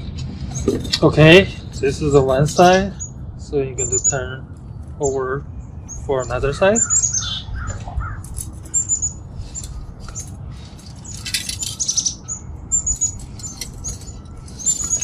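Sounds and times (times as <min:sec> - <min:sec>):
small birds chirping: 0:00.1 - 0:15.0
bicycle wheel spokes rattling: 0:08.2 - 0:15.0.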